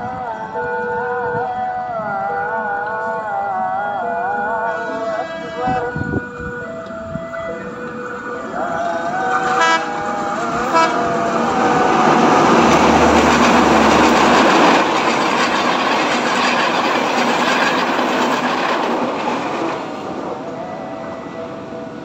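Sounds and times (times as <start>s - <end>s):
passing train running noise: 0.0s - 22.0s
train horn toots: 4.6s - 15.2s, 20.4s - 22.0s.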